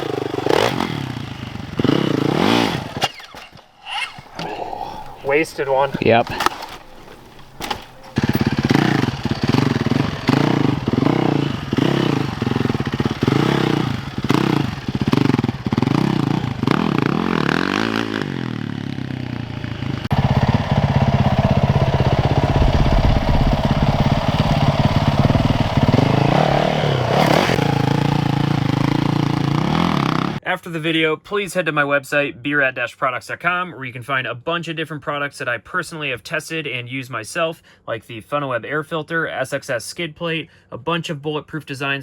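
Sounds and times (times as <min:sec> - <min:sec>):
dirt bike engine revving: 0:00.0 - 0:03.2, 0:08.0 - 0:30.4.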